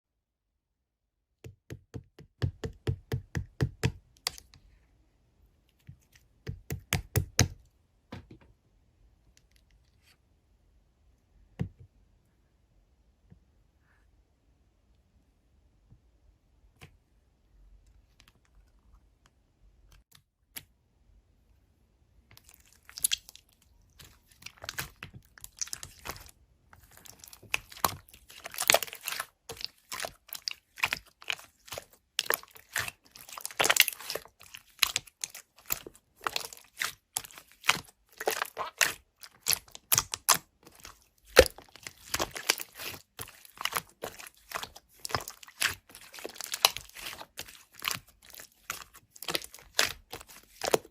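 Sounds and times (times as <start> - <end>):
crinkling and tearing: 22.4 - 50.9.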